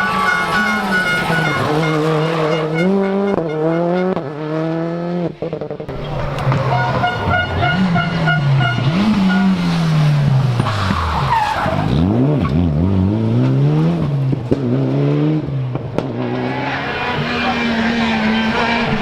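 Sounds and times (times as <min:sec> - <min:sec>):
tyres squealing and skidding: 0:00.0 - 0:04.2, 0:05.9 - 0:12.6, 0:16.2 - 0:19.0
rally car engine revving: 0:00.0 - 0:19.0.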